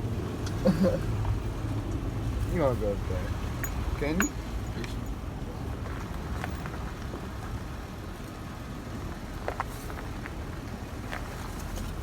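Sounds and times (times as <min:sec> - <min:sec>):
knocks and rattles: 0:03.5 - 0:05.1.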